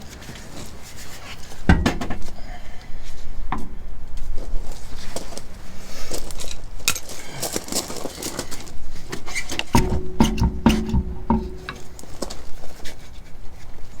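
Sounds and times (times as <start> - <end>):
heavy tyre thump: 1.6 - 2.5, 9.1 - 12.4
sharp knock: 9.8 - 12.1.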